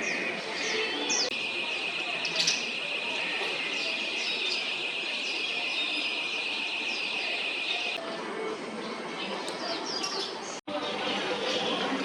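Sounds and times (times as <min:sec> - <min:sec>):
small birds chirping: 0:00.0 - 0:08.0
steady high-pitched buzz: 0:01.3 - 0:08.0.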